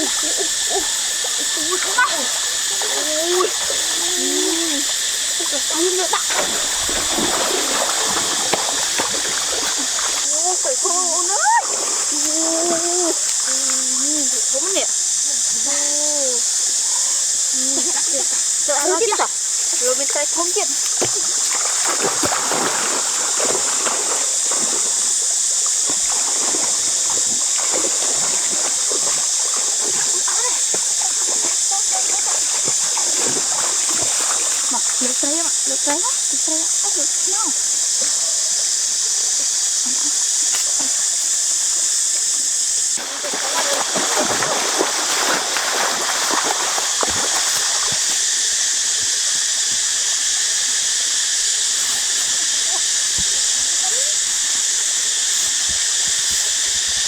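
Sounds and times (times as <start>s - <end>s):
water trickling and splashing: 0.0s - 15.2s, 16.8s - 38.3s, 42.6s - 48.5s
high-pitched hiss: 0.0s - 57.0s.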